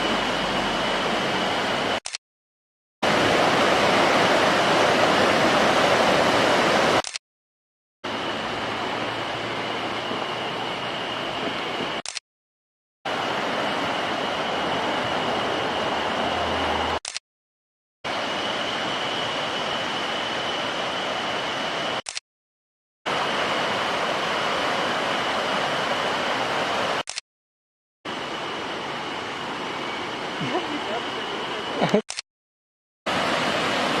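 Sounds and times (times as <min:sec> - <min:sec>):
stream water rushing over rocks: 0:03.0 - 0:07.0, 0:08.1 - 0:11.7, 0:13.1 - 0:17.0, 0:23.1 - 0:27.0, 0:33.1 - 0:34.0.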